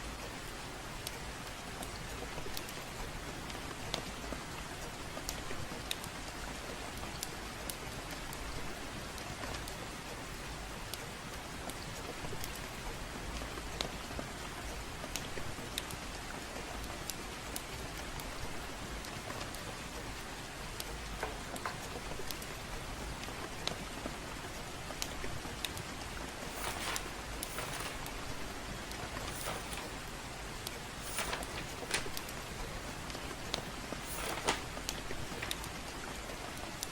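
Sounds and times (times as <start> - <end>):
gentle rain falling: 0.0 - 36.9
wood fire crackling: 17.0 - 36.9.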